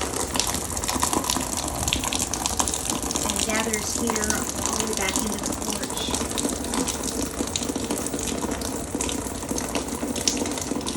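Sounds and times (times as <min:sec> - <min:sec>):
rainwater pouring and splashing: 0:00.0 - 0:10.9
small water splats: 0:00.0 - 0:10.9.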